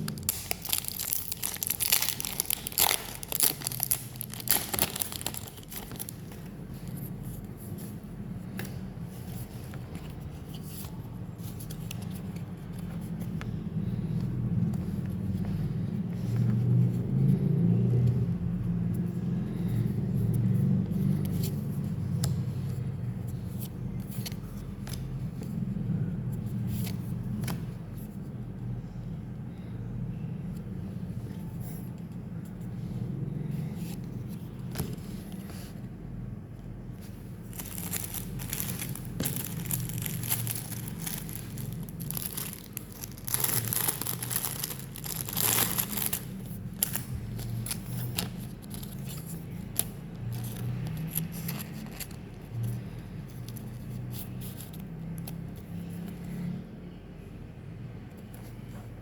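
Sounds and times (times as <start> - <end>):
wrapper tearing and crinkling: 0.0 - 6.2, 37.5 - 47.1
steady low hum: 0.0 - 59.0.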